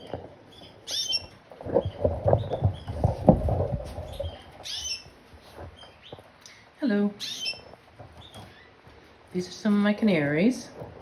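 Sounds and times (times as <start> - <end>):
canaries chirping: 0.0 - 10.6
low thumps and knocks: 1.6 - 4.5.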